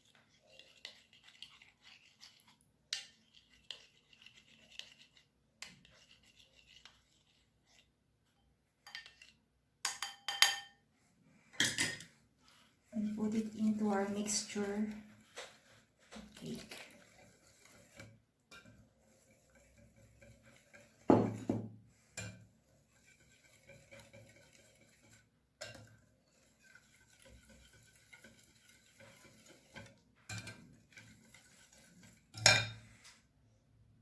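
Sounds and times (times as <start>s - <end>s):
utensil stirring batter in bowl: 0.0s - 33.4s
knocks against bowl: 21.1s - 21.7s.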